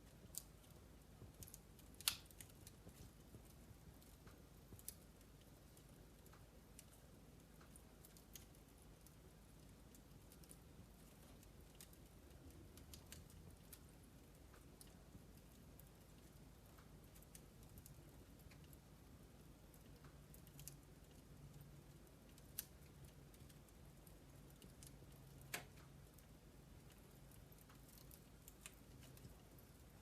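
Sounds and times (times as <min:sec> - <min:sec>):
wood logs crackling in fireplace: 0:00.0 - 0:30.0
fire pops: 0:01.2 - 0:05.0.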